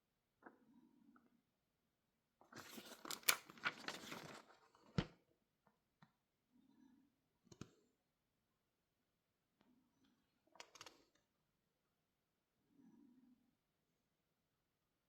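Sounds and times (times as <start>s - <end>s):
packaging crinkling and tearing: 2.6s - 4.6s.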